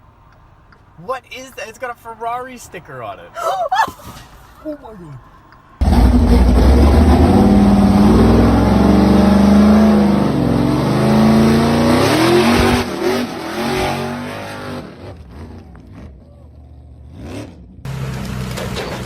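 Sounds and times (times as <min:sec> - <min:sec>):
car engine revving: 0:05.8 - 0:15.3.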